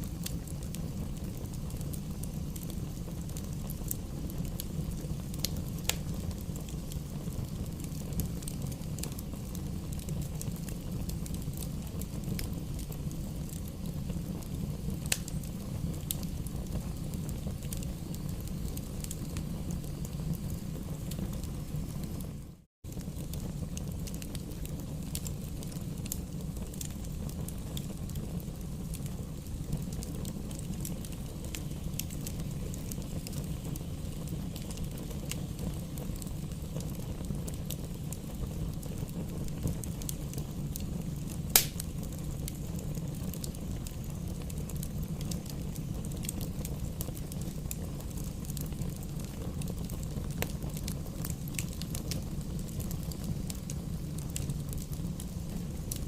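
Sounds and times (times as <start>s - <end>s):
wood fire crackling: 0.0s - 56.0s
sharp pop from logs: 41.6s - 41.8s.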